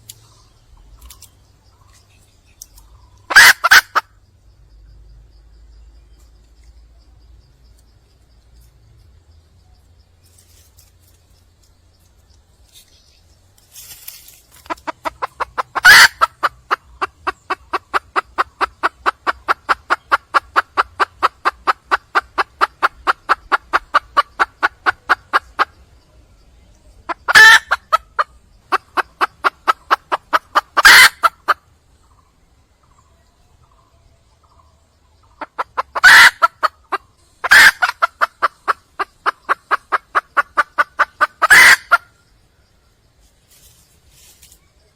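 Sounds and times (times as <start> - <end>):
hen clucking: 0.3 - 4.1, 14.4 - 26.1, 26.9 - 32.2, 34.4 - 42.2.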